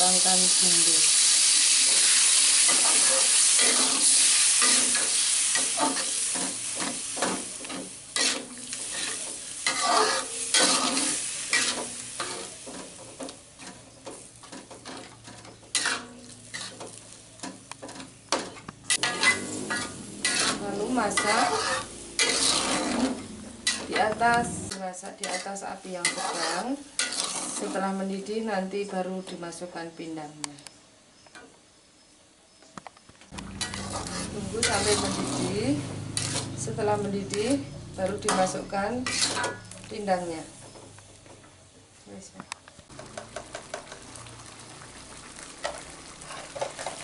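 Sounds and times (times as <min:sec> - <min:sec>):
liquid sizzling in a wok: 0:00.0 - 0:28.4, 0:33.4 - 0:41.4, 0:42.9 - 0:47.0
metal spatula scraping a wok: 0:01.8 - 0:13.9, 0:14.5 - 0:17.1, 0:17.9 - 0:28.0, 0:33.5 - 0:37.5, 0:38.2 - 0:40.7, 0:45.6 - 0:47.0.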